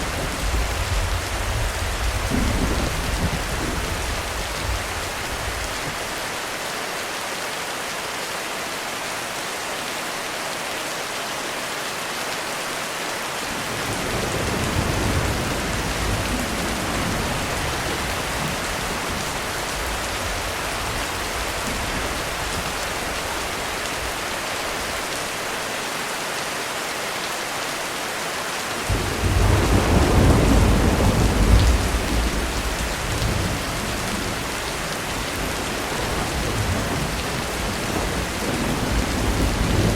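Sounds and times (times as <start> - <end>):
heavy rain on a roof: 0.0 - 39.9
thunder rumbling: 0.1 - 5.8, 13.6 - 24.2, 28.9 - 39.9.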